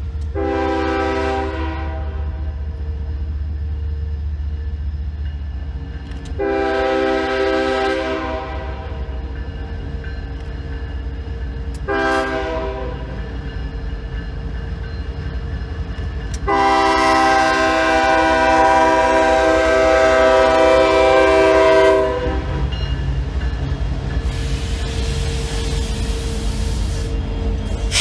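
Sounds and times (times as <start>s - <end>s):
passing train rumble: 0.0s - 28.0s
locomotive air horn blasts: 0.3s - 2.4s, 6.4s - 9.0s, 11.8s - 13.1s, 16.4s - 22.7s.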